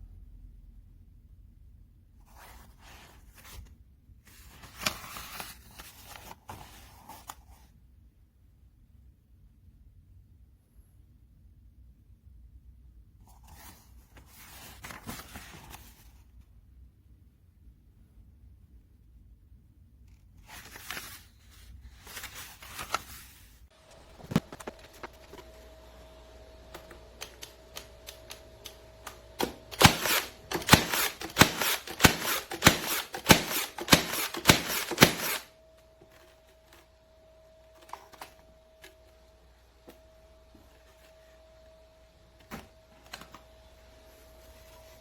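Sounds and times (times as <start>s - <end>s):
handling noise and light clicks: 22.1s - 41.4s
nailer firing sharp clacks: 29.4s - 35.5s.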